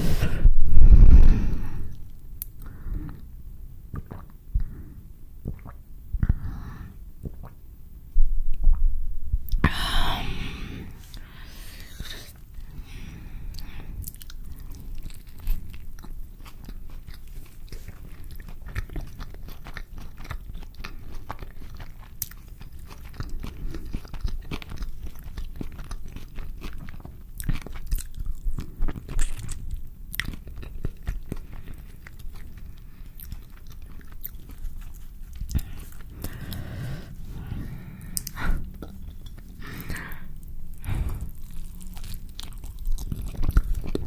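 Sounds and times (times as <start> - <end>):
wet chewing: 3.9 - 4.7, 13.4 - 44.0
biting into tortilla: 40.8 - 44.0.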